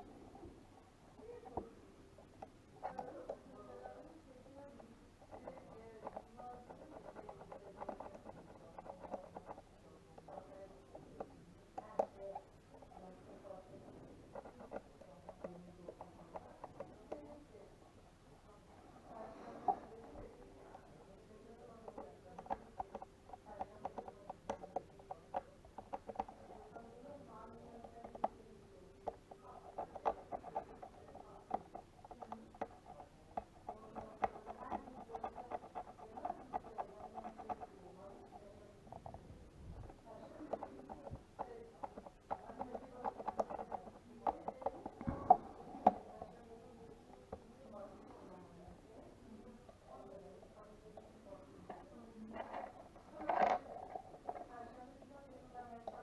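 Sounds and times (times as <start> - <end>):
faint steady hum: 0.0 - 56.0
plastic mouse clicks: 39.8 - 46.4, 51.7 - 54.5.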